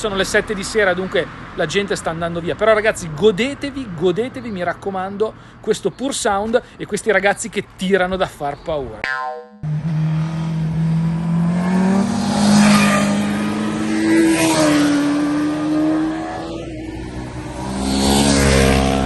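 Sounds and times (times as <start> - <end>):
motorcycles accelerating past: 9.6 - 19.0.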